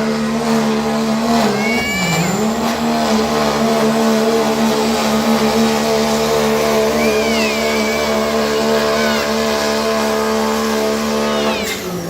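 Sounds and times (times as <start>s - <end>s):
diesel truck engine under load: 0.0s - 12.0s
high whistle: 6.5s - 12.0s.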